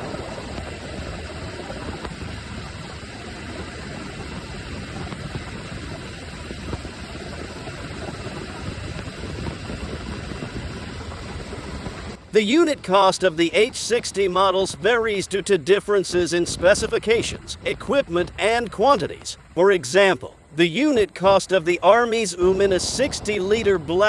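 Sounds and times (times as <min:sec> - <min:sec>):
helicopter engine and rotor noise: 0:00.0 - 0:24.0.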